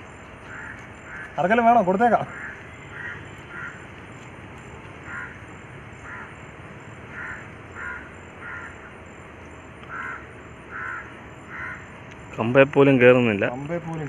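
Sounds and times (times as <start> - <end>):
steady background hiss: 0.0 - 14.0
crows cawing: 0.4 - 6.5, 7.1 - 9.1, 9.8 - 12.0.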